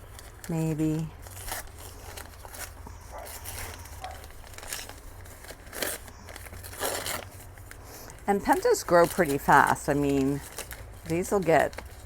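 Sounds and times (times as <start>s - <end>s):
loud plastic crackles: 0.0s - 12.0s
plastic packaging rustling: 0.0s - 12.0s.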